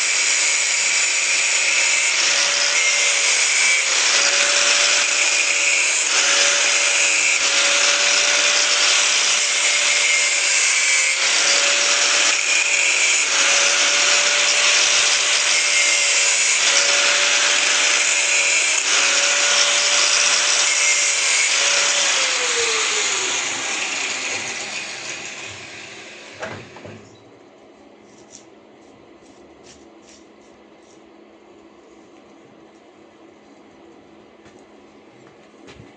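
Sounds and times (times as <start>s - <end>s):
electric power tool motor: 0.0s - 26.8s.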